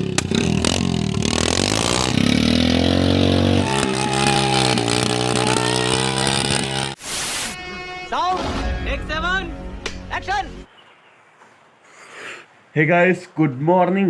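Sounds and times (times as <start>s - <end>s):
vehicle engine revving: 0.0s - 7.0s.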